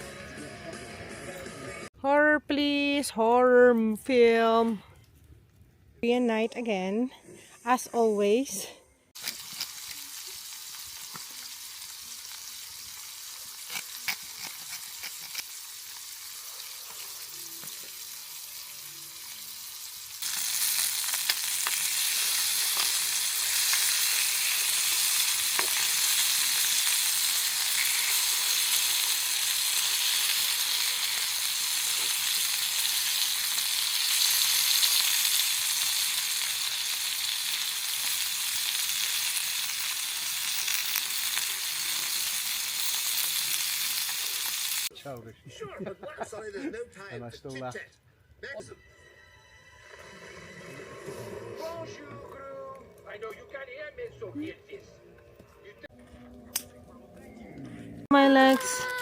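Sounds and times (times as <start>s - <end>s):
pork belly sizzling: 9.2s - 44.9s.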